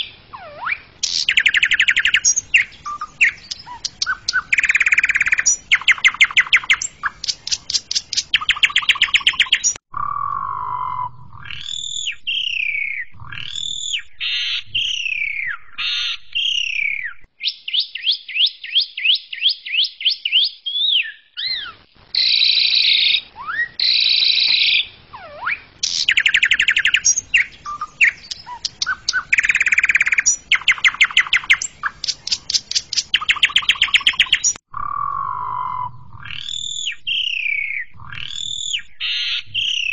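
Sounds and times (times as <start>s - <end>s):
starling singing varied song: 0.0s - 9.8s, 25.8s - 34.6s.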